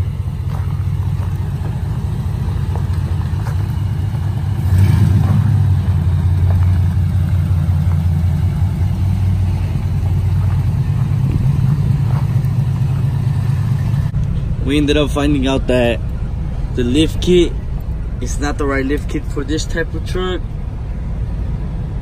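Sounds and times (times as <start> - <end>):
vehicle engine and road rumble: 0.0 - 22.0.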